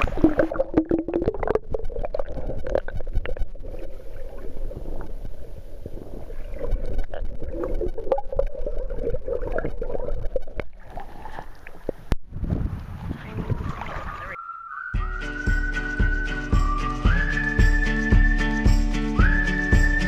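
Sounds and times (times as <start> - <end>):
underwater river gurgling: 0.0 - 14.9.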